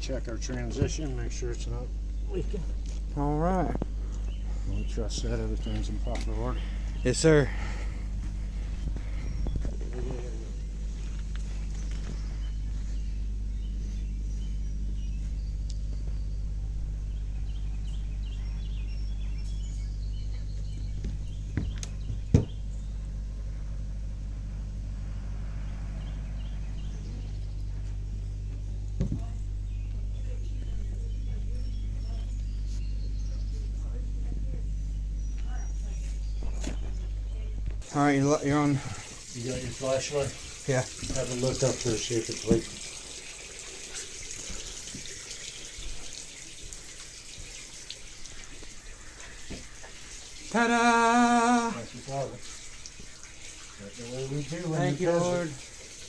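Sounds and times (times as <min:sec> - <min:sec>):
low machine hum: 0:00.0 - 0:56.0
faint knocks: 0:20.3 - 0:22.7, 0:27.8 - 0:32.2
water running from tap: 0:37.8 - 0:56.0.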